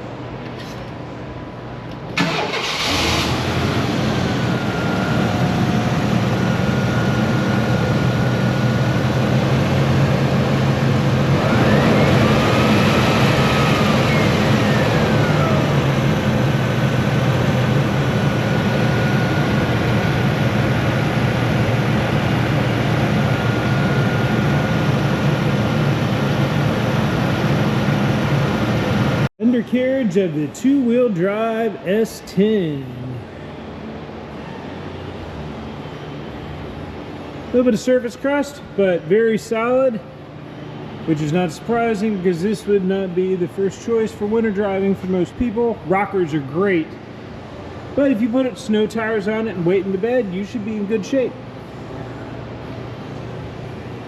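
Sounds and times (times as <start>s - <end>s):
engine cranking and idling: 2.1s - 25.6s
rising and falling whine: 2.8s - 29.3s
faint high whine: 3.8s - 54.0s.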